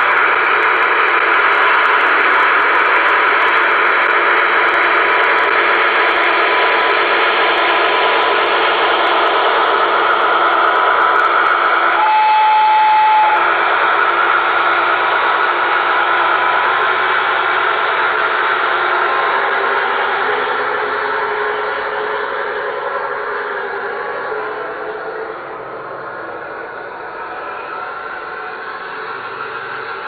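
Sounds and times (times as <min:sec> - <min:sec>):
diesel engine sound through loudspeaker: 0:00.0 - 0:30.0
held electronic tone: 0:11.9 - 0:13.5.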